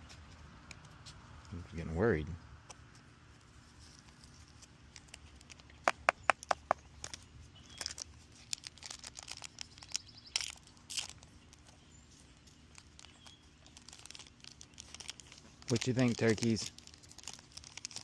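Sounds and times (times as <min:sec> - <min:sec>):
foil wrapper crinkling: 0:03.6 - 0:18.0.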